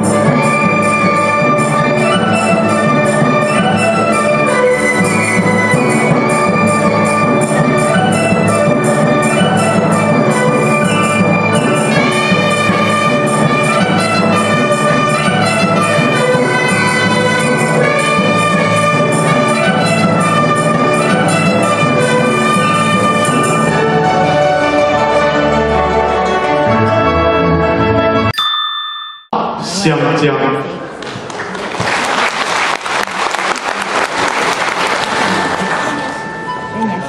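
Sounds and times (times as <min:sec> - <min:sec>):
percussion strokes: 0:00.0 - 0:24.3
bright brass-like melody: 0:00.0 - 0:28.4.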